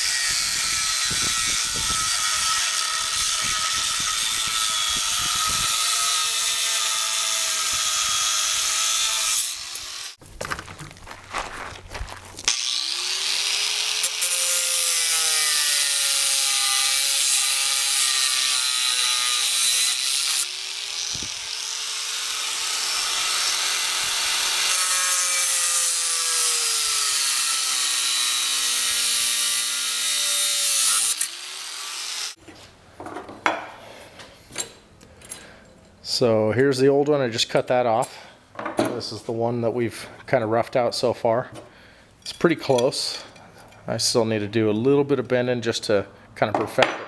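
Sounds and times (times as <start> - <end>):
power tool cutting metal: 0.0 - 10.2, 12.5 - 32.4.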